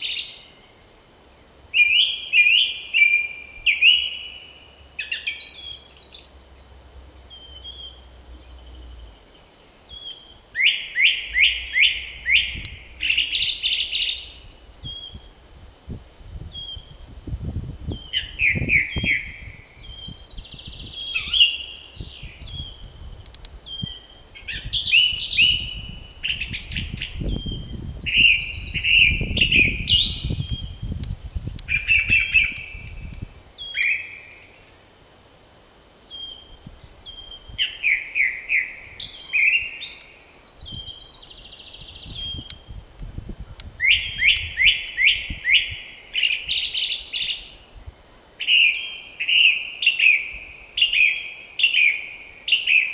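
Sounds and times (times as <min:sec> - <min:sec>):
songbirds singing: 0:00.0 - 0:52.9
wind gusts rumbling: 0:11.4 - 0:33.5, 0:40.6 - 0:46.6.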